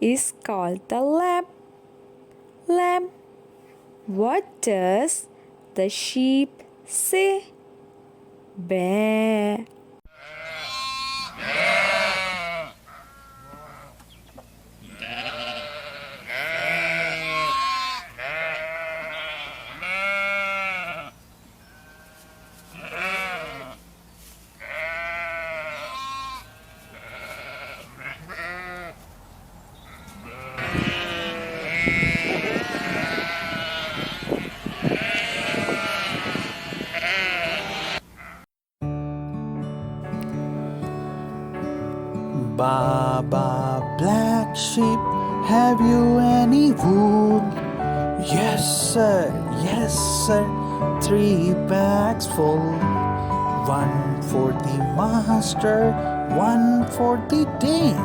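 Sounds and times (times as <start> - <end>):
sheep bleating: 10.1 - 14.0, 14.8 - 23.8, 24.6 - 29.0, 29.8 - 38.5.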